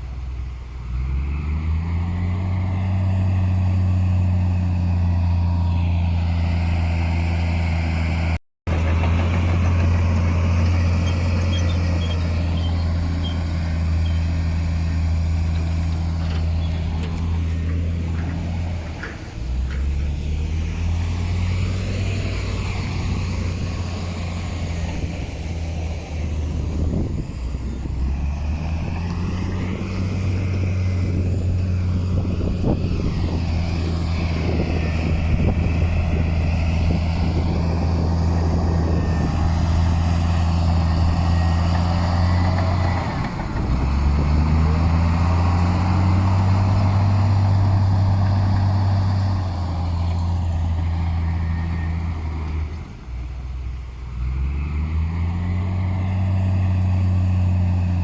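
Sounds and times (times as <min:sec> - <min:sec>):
heavy diesel engine under load: 0:00.0 - 0:58.0
machinery clatter: 0:08.7 - 0:20.7.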